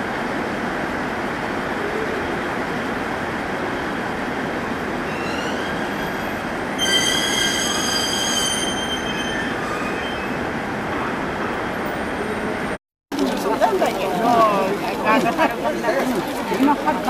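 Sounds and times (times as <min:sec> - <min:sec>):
high metallic wheel squeal: 0:05.1 - 0:10.5.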